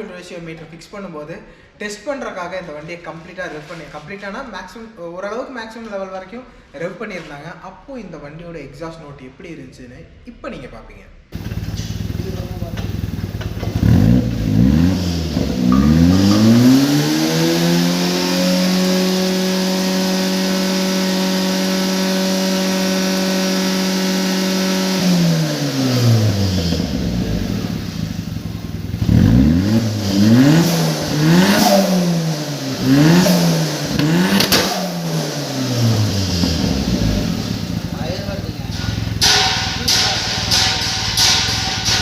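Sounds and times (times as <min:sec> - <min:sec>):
car engine revving: 0:11.4 - 0:42.0
exhaust pops: 0:11.4 - 0:42.0.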